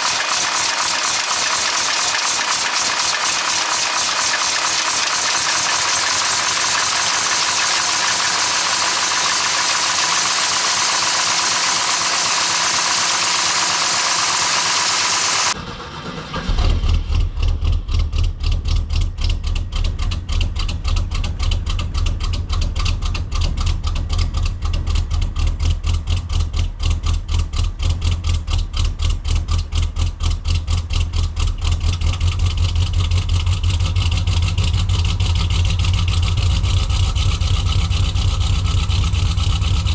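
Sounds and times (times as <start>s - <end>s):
engine idling with lumpy beat: 15.5s - 39.9s.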